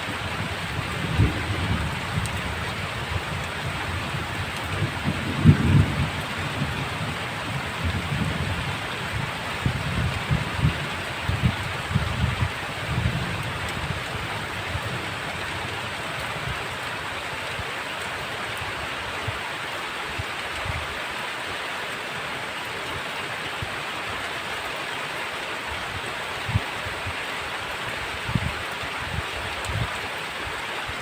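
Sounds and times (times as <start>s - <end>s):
heavy rain: 0.0s - 31.0s
thunder rumbles: 0.1s - 16.7s.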